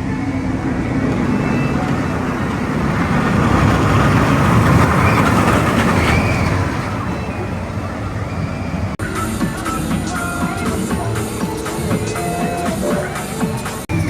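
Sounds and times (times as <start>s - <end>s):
roller coaster rumbling on track: 0.0s - 14.0s
music: 9.0s - 14.0s.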